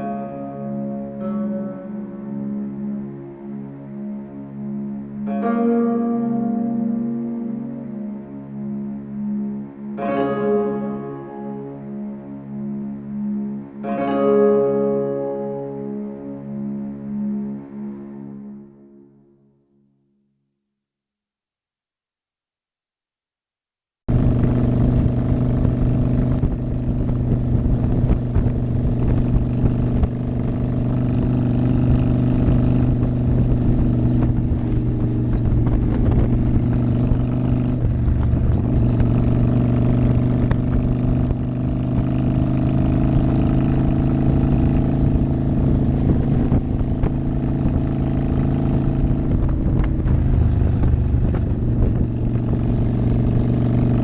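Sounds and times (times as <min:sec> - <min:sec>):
motorcycle engine cruising: 0:24.1 - 0:54.0
wind and road noise: 0:24.1 - 0:54.0.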